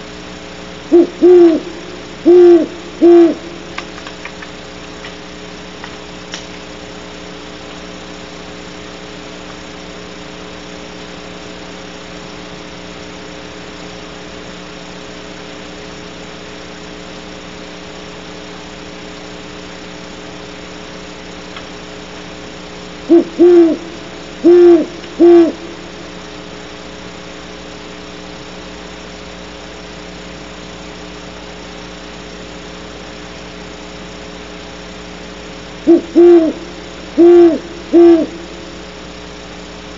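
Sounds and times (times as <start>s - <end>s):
steady hum: 0.0s - 39.9s
owl hooting: 0.9s - 3.9s, 23.0s - 26.0s, 35.8s - 38.8s.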